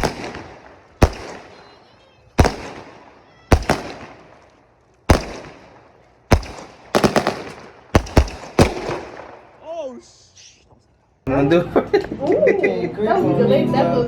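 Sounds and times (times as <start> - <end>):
fireworks bangs echoing: 0.0 - 9.8.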